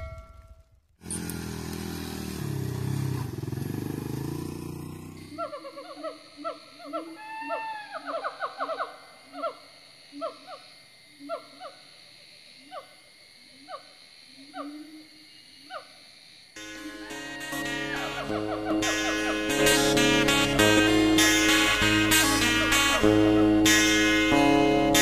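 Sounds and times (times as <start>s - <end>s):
low hooting notes: 16.6s - 25.0s.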